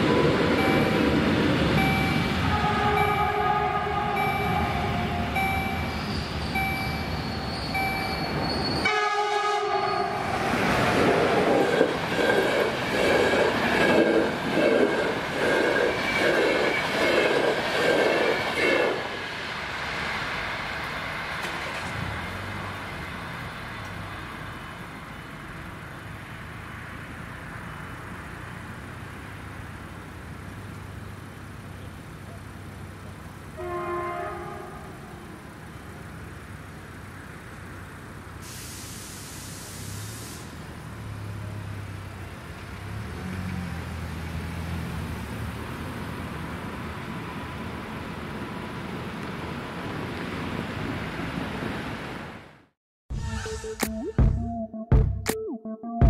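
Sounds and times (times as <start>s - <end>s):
level-crossing warning signal: 0.0s - 10.4s
train horn blast: 2.4s - 5.4s, 8.8s - 10.6s, 33.6s - 35.4s
train coaches clattering: 10.1s - 22.2s.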